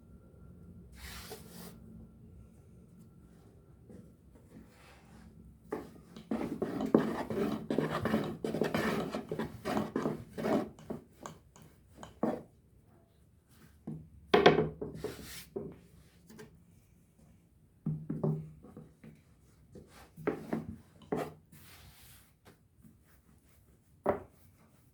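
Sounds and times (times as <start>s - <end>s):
rubbing and light knocks of dishes: 5.8s - 12.5s.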